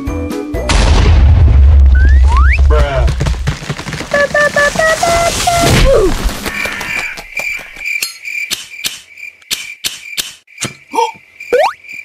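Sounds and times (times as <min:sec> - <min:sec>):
crickets chirping: 0:06.2 - 0:12.0.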